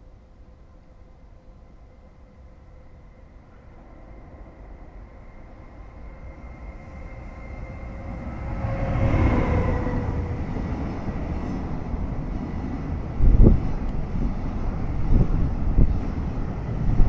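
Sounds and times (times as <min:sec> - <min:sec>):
electric locomotive whine: 0:00.0 - 0:17.0
wind buffeting microphone: 0:07.6 - 0:17.0.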